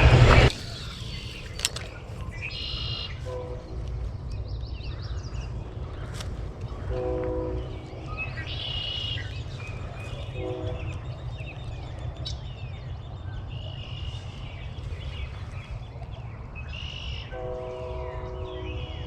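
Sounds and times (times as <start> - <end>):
birds chirping and calling: 0.0 - 19.0
steady low rumble: 0.0 - 19.0
distant train horn: 2.4 - 14.3, 16.7 - 19.0.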